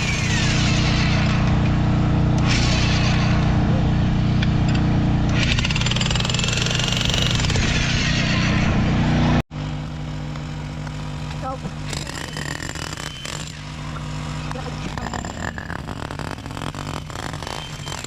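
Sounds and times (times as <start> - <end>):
jackhammer hammering on concrete: 4.7 - 7.7, 10.2 - 18.0.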